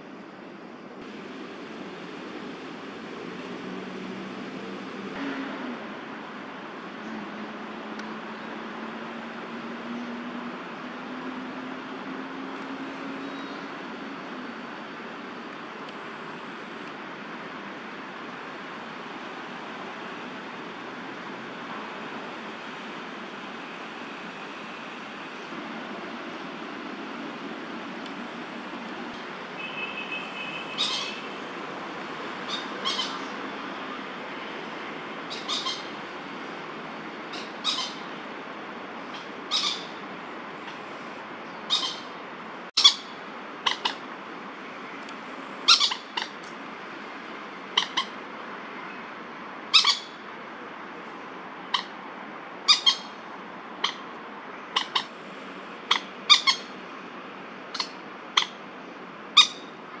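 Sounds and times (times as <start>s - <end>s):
moorhen alarm calls: 30.7s - 31.3s, 32.4s - 33.4s, 35.3s - 36.0s, 37.3s - 38.2s, 39.1s - 40.0s, 41.6s - 42.2s, 42.8s - 44.1s, 45.7s - 46.4s, 47.7s - 48.2s, 49.7s - 50.2s, 51.6s - 52.0s, 52.6s - 53.2s, 53.8s - 55.2s, 55.8s - 56.8s, 57.7s - 58.6s, 59.3s - 59.8s.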